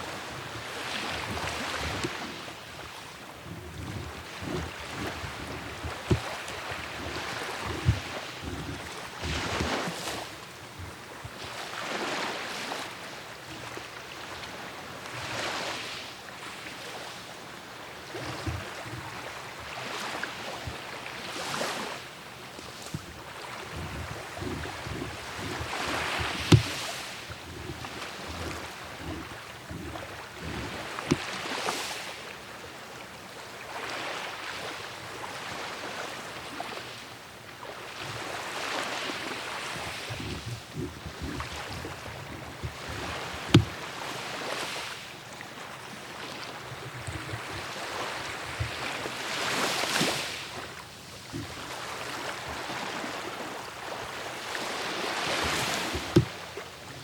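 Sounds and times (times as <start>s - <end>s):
wind on microphone: 0.0s - 12.2s, 22.4s - 32.0s, 38.0s - 45.0s
sea waves washing ashore: 0.0s - 57.0s
sharp knocks: 43.4s - 43.8s, 56.0s - 56.4s.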